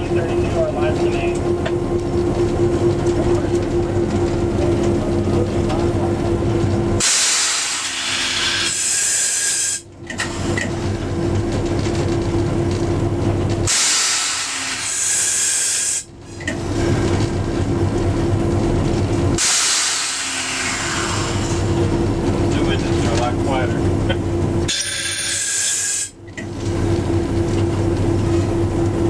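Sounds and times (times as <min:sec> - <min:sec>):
steady machine hum: 0:00.0 - 0:09.1
loud air hissing: 0:07.0 - 0:09.8, 0:13.7 - 0:16.1, 0:19.4 - 0:21.6.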